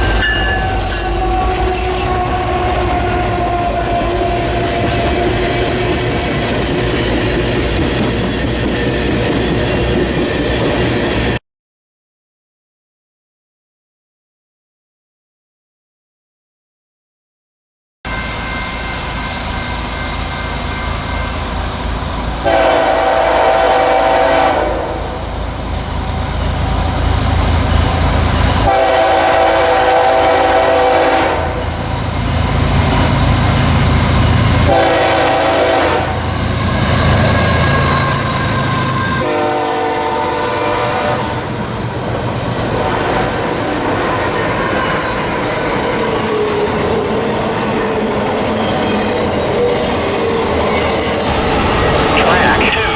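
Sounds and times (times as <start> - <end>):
train on rails: 0.0 - 11.4, 18.1 - 52.9
locomotive air horn blasts: 0.6 - 6.2, 22.4 - 25.2, 28.7 - 31.7, 34.7 - 41.5.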